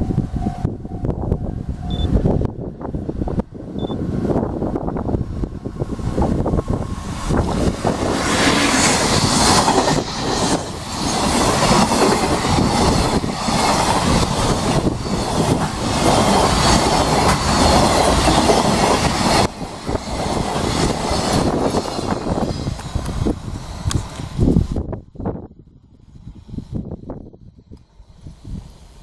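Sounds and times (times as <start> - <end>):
freight train passing: 0.0 - 29.0
wheels clacking over rail joints: 7.4 - 23.2.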